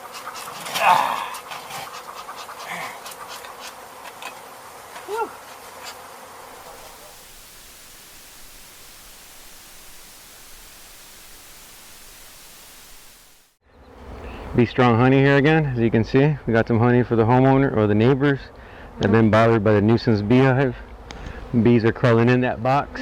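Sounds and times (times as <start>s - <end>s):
honey bees buzzing: 0.0s - 14.8s.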